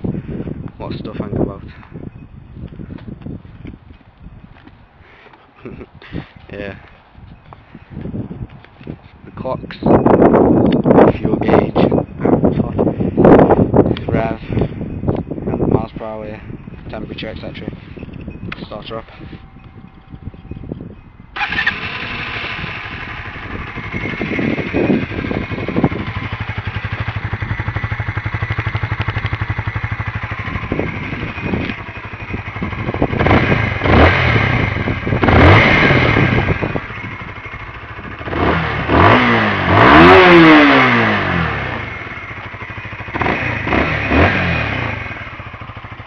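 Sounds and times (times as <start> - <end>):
motorcycle engine idling and revving: 0.0 - 46.0
motorcycle engine starting: 17.4 - 46.0.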